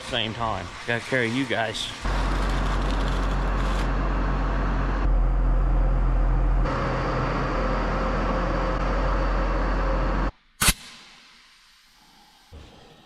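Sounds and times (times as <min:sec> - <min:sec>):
tractor diesel engine running: 0:02.0 - 0:10.3.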